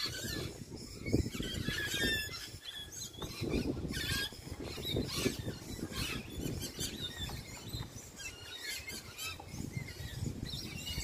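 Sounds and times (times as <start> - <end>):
birds chirping and squealing: 0.0 - 11.0.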